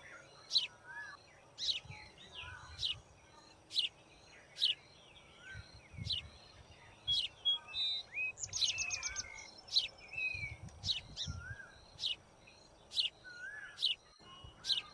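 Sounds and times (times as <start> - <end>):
birds chip notes: 0.0 - 14.9
bird rapid trill: 7.1 - 14.9.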